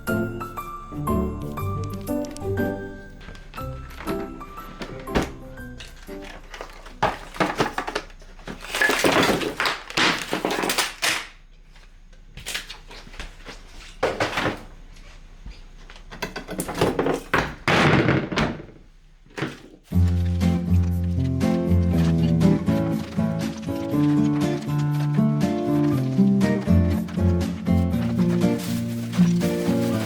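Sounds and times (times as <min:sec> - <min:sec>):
rustling: 0:03.1 - 0:11.0, 0:19.3 - 0:30.0
clattering and thunks: 0:03.2 - 0:10.8, 0:13.9 - 0:14.7, 0:16.0 - 0:30.0.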